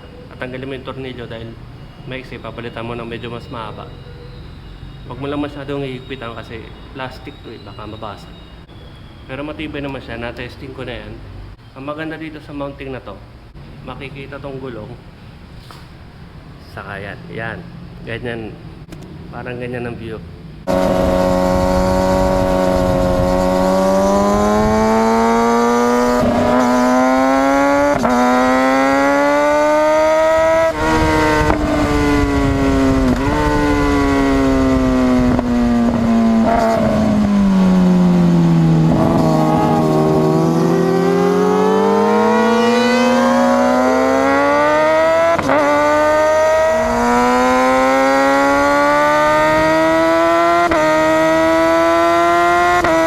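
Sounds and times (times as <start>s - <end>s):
motorcycle engine accelerating: 20.6s - 53.0s.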